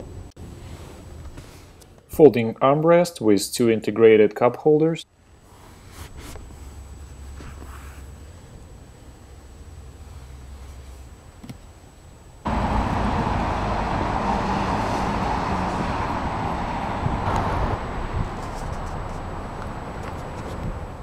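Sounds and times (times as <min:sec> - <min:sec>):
road traffic noise: 0:12.4 - 0:21.0.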